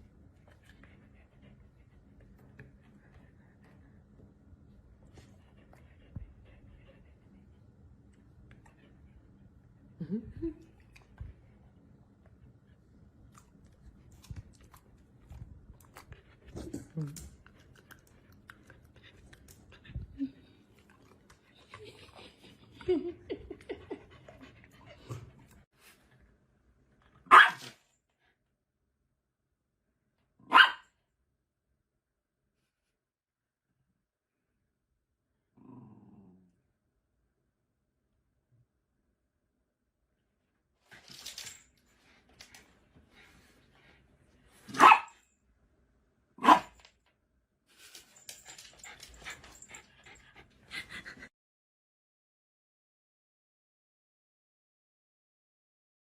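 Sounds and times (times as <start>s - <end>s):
dog barking loudly: 27.3s - 27.6s, 30.5s - 30.9s, 44.7s - 45.1s, 46.4s - 46.7s.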